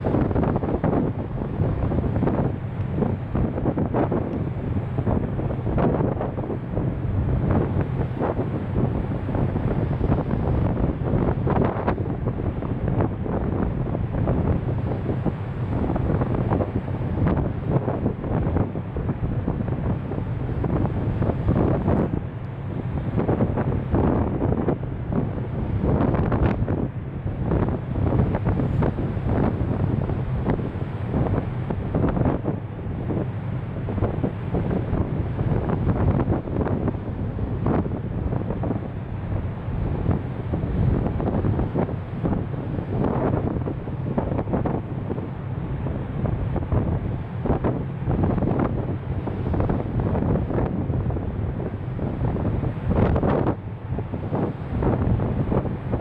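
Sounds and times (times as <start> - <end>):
low rumble of ferry and sea: 0.0 - 56.0
steady low hum: 0.0 - 56.0
wind buffeting microphone: 0.0 - 56.0.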